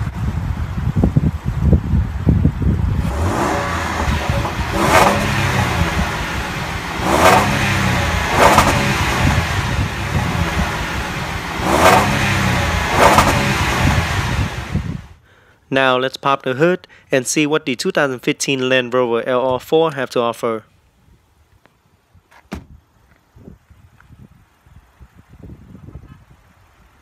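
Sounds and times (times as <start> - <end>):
car engine idling and revving: 1.8 - 15.2.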